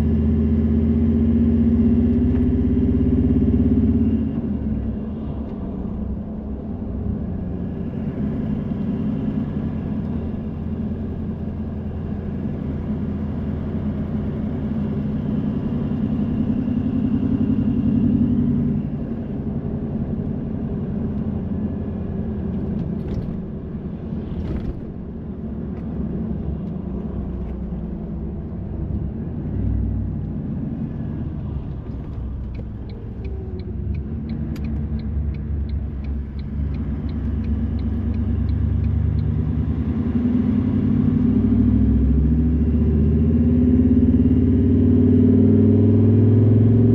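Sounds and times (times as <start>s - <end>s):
car engine and road rumble: 0.0s - 46.9s
regular ticking: 32.2s - 39.4s.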